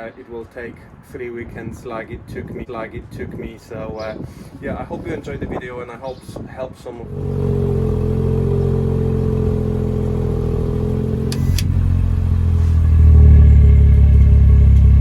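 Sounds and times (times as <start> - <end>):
car engine and exhaust running: 7.0 - 15.0.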